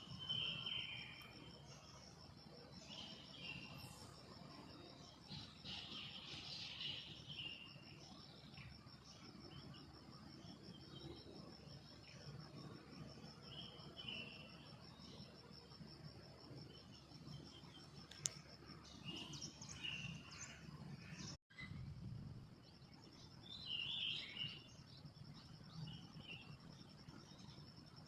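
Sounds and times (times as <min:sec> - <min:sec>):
bird chirps: 0:00.0 - 0:02.0, 0:16.8 - 0:21.8, 0:23.0 - 0:26.6
click: 0:18.1 - 0:18.4.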